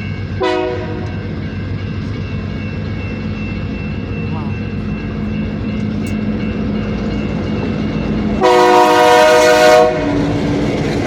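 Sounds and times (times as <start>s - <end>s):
diesel locomotive idling: 0.0s - 11.0s
locomotive air horn blast: 0.4s - 1.0s, 8.4s - 10.2s.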